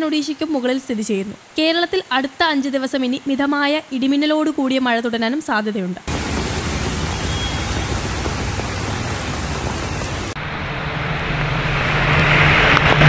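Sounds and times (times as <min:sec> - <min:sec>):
heavy rain hissing on a road: 0:06.1 - 0:13.0
vehicle engine low hum: 0:06.1 - 0:13.0
vehicles driving through rain: 0:06.1 - 0:13.0.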